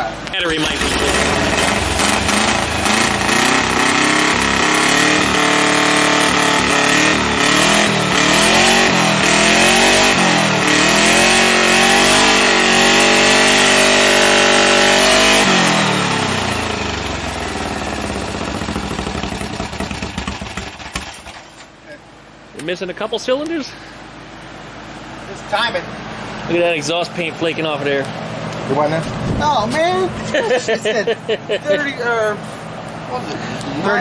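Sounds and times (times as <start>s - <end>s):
air-cooled car engine revving: 0.0s - 22.3s.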